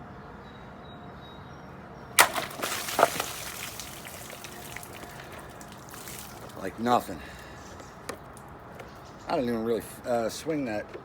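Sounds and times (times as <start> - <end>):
knife chopping plastic bottle: 2.2 - 6.7
water splashing: 2.2 - 8.9.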